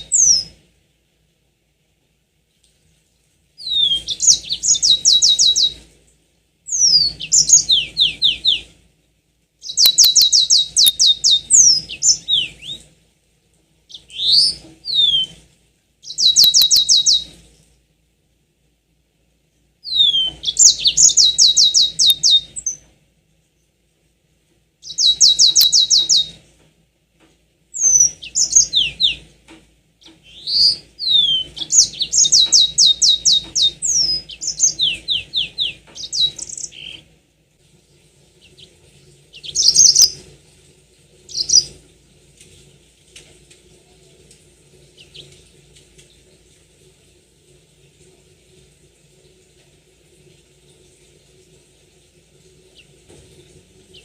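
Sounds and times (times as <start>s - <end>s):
canary singing trills and whistles: 0.0s - 0.5s, 3.6s - 5.8s, 6.7s - 8.7s, 9.6s - 12.9s, 13.9s - 15.4s, 16.0s - 17.4s, 19.8s - 22.8s, 24.8s - 26.4s, 27.8s - 29.3s, 30.0s - 37.0s, 39.3s - 40.3s, 41.3s - 41.8s.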